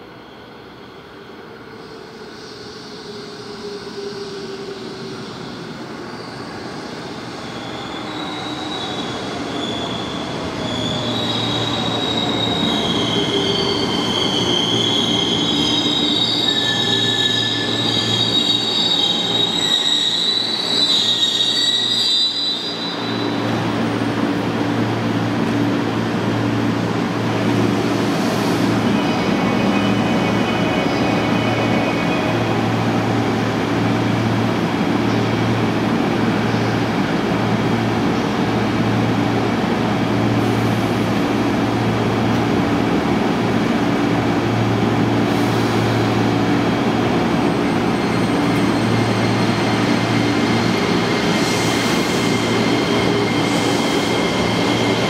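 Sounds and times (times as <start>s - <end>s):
train brakes squealing: 0.1s - 24.5s, 26.5s - 34.2s, 44.6s - 55.0s.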